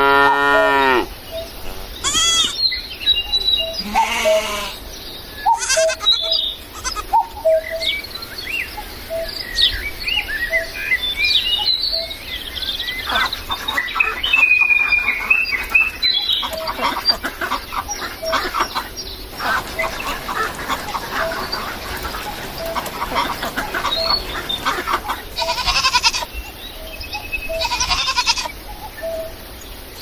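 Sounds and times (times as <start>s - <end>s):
small birds chirping: 1.3s - 29.0s
goat bleating: 2.0s - 2.6s, 3.8s - 4.8s, 5.5s - 7.0s, 25.4s - 26.3s, 27.6s - 28.5s.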